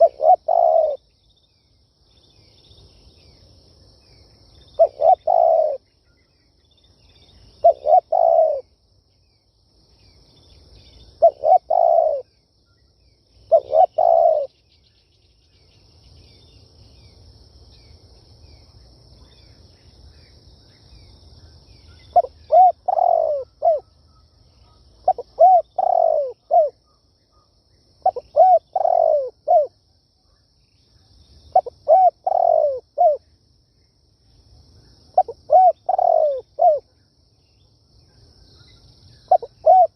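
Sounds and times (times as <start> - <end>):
dove cooing: 0.0 - 1.0, 4.8 - 5.8, 7.6 - 8.7, 11.2 - 12.3, 13.5 - 14.5, 22.1 - 23.9, 25.0 - 26.8, 28.0 - 29.8, 31.6 - 33.2, 35.2 - 36.8, 39.3 - 39.9.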